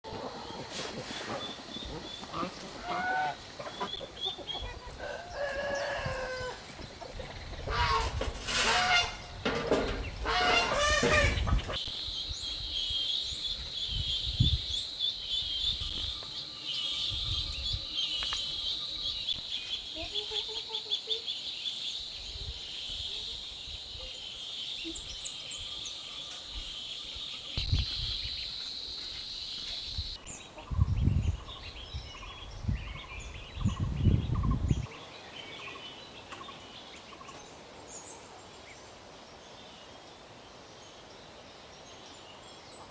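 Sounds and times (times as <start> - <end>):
chickens clucking: 0.0 - 11.9
rooster crowing: 5.0 - 6.6.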